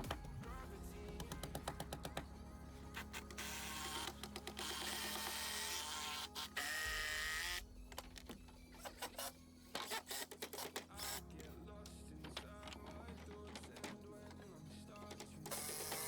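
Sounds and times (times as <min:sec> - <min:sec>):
background music: 0:00.0 - 0:16.0
sharp clicks and knocks: 0:01.1 - 0:02.4, 0:03.0 - 0:05.6
small motor tool whirring: 0:02.9 - 0:11.3, 0:15.4 - 0:16.0.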